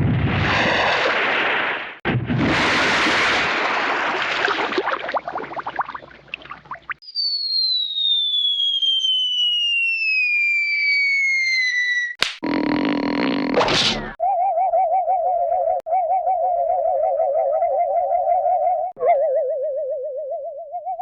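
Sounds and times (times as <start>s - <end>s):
cartoon explosion with crackles: 0.0s - 5.6s
falling whistle: 7.0s - 12.2s
sharp snap: 12.2s - 12.4s.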